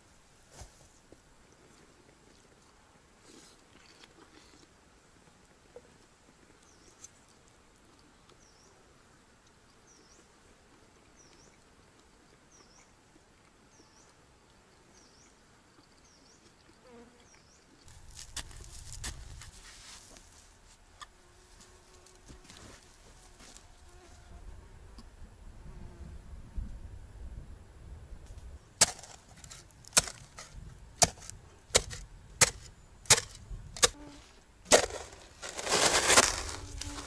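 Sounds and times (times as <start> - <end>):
pick striking earth: 28.8 - 34.0, 34.6 - 37.0.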